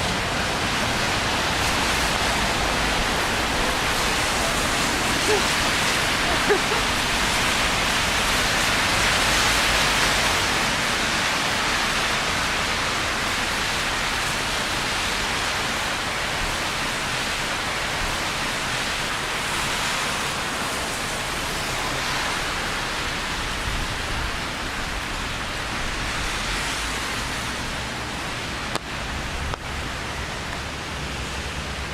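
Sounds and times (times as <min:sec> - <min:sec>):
rain falling: 0:00.0 - 0:31.9.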